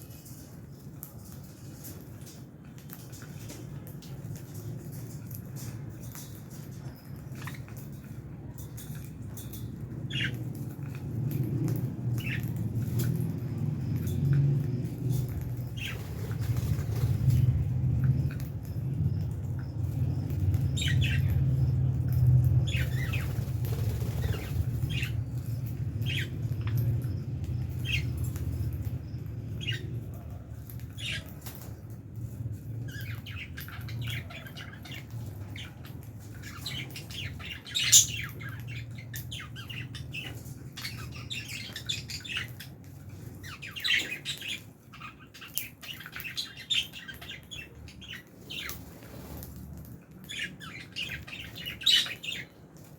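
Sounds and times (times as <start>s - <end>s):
lovebirds chirping: 0.0s - 49.4s, 50.0s - 52.9s
low rumble: 4.0s - 31.0s.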